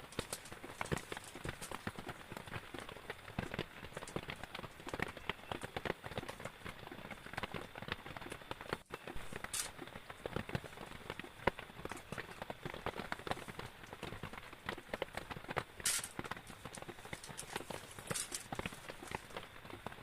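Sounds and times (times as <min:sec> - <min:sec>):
rain dripping and tapping: 0:00.0 - 0:20.0.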